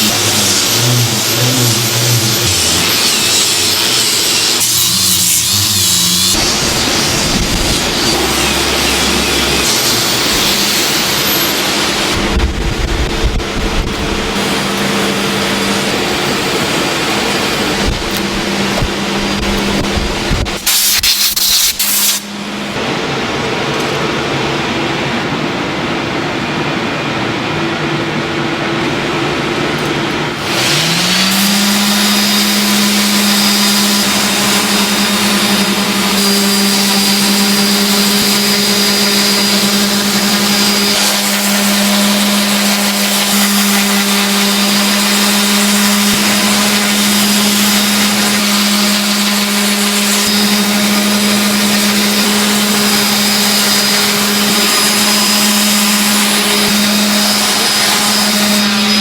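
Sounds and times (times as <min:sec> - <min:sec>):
machinery motor humming and whining: 0:00.0 - 0:20.8, 0:22.2 - 0:59.0.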